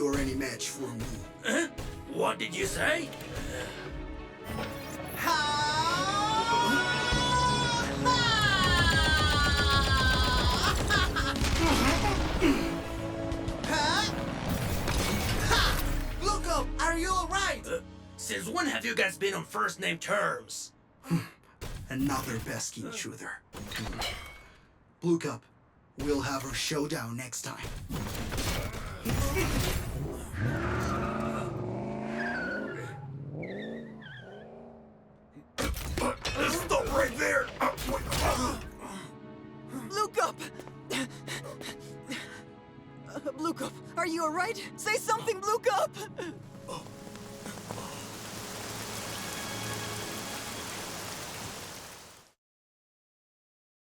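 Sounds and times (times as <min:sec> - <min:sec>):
rain-like hiss: 0:46.8 - 0:52.4.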